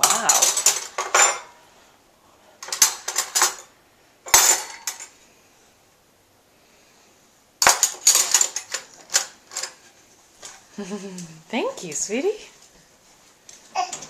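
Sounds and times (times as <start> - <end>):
metal cutlery clinking: 0.0 - 1.6, 2.6 - 3.7, 4.3 - 5.1, 7.6 - 10.6.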